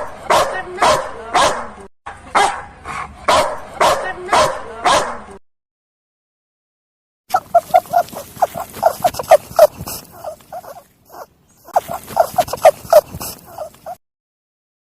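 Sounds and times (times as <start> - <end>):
animal rapid short cries: 7.3 - 14.0.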